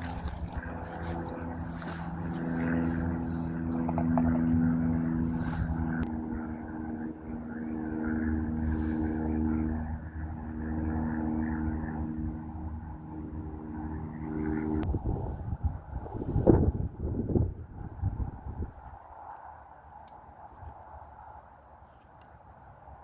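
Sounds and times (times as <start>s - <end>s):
engine rumbling: 0.0s - 16.8s
wind on microphone: 14.4s - 19.2s.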